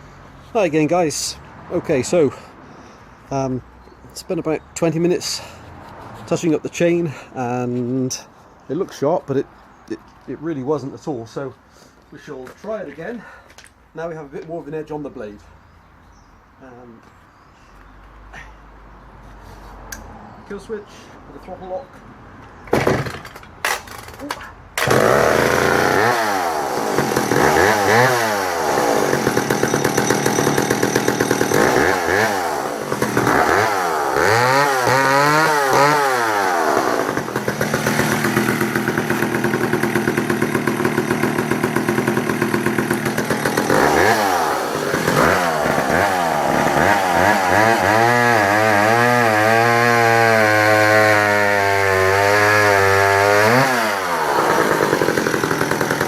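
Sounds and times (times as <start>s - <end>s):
chainsaw starter cord pulls: 23.7s - 56.0s
chainsaw engine revving: 24.8s - 56.0s.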